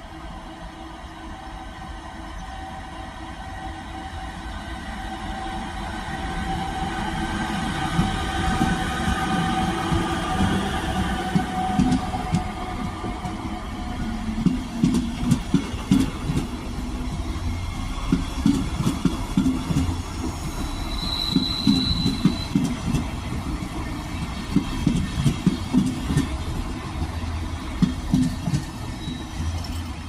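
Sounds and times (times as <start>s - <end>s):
train wheels clattering over joints: 14.4s - 17.4s, 18.0s - 30.0s
wheel squeal: 19.9s - 22.8s, 28.9s - 29.8s.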